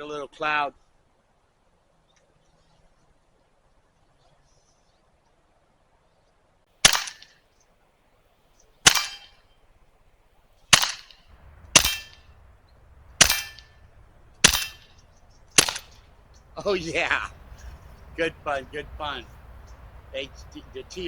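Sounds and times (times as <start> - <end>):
air pistol shots: 6.8 - 7.4, 8.9 - 9.4, 10.8 - 21.0.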